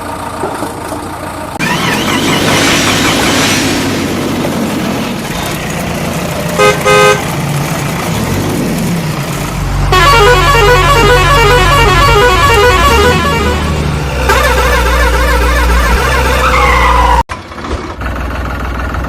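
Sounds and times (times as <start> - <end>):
vehicle engine running: 0.0 - 16.6, 17.3 - 19.0
horn honks: 6.6 - 7.3, 9.9 - 17.2.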